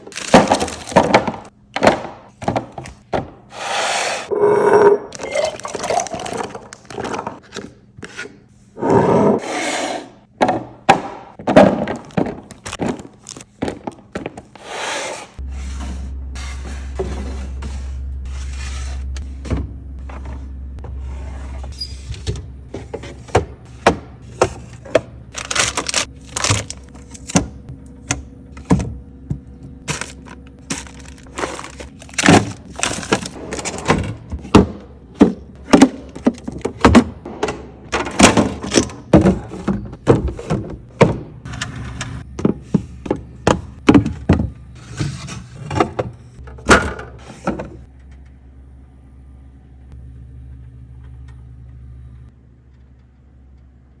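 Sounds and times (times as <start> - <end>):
food containers and jars clinking: 29.9 - 34.6.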